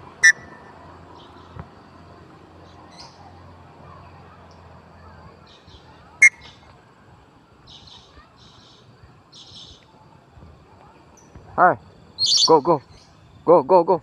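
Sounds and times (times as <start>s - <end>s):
faint high bird chirps: 0.1s - 1.7s, 2.6s - 6.7s, 7.6s - 10.0s, 12.1s - 13.7s
loud sharp bird call: 0.2s - 0.7s, 5.5s - 6.6s, 12.2s - 13.1s.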